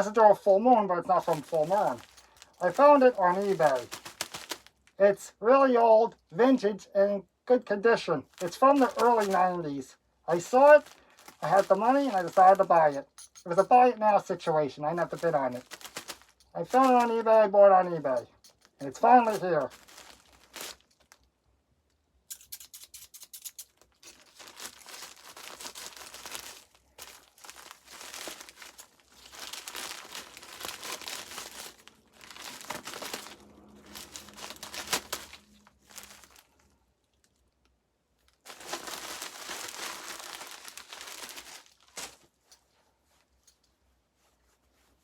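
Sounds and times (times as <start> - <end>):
packaging tearing and crinkling: 1.1 - 5.0, 8.2 - 9.6, 10.3 - 13.0, 15.0 - 17.3, 19.0 - 21.2, 22.3 - 36.6, 38.2 - 42.2.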